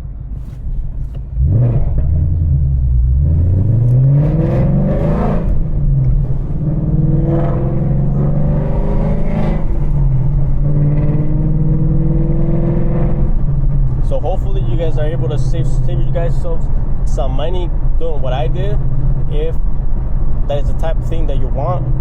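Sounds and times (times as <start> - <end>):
car engine accelerating: 0.3 - 22.0.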